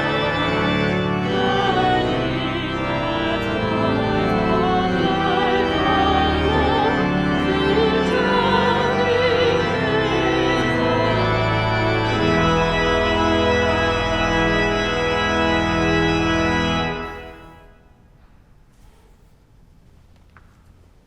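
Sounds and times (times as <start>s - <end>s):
voices singing: 0.0s - 11.2s
church organ chords: 0.0s - 18.0s.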